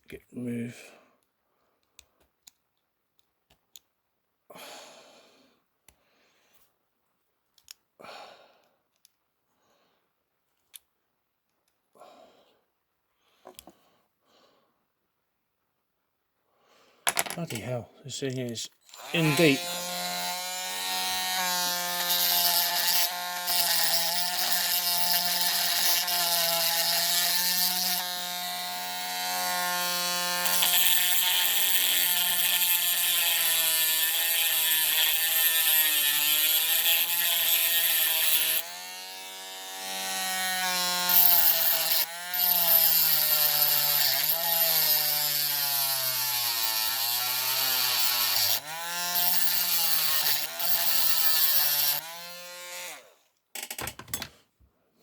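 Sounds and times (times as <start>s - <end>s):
rotary tool cutting metal: 18.4s - 54.3s.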